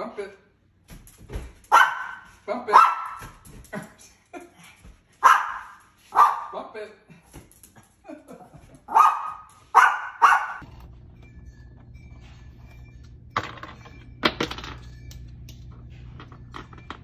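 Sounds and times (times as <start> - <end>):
small dog barking: 1.7 - 3.4, 5.2 - 6.6, 8.9 - 10.6
steady low hum: 10.6 - 17.0.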